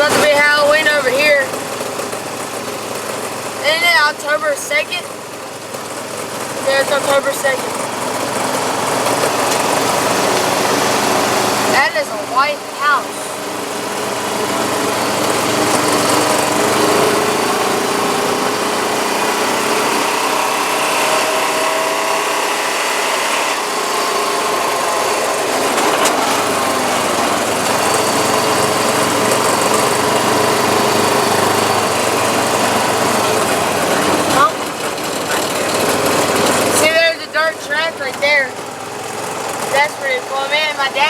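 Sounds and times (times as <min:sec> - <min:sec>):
atv engine running: 0:00.0 - 0:41.0.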